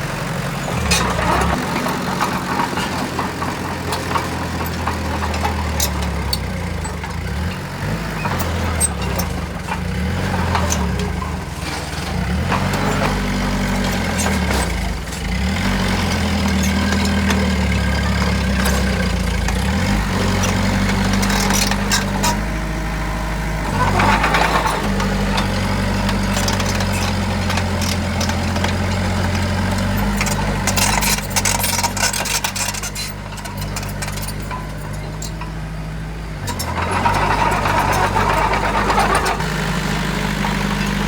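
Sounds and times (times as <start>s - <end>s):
heavy diesel engine running: 0.0s - 41.0s
short metal clanks: 23.7s - 35.6s.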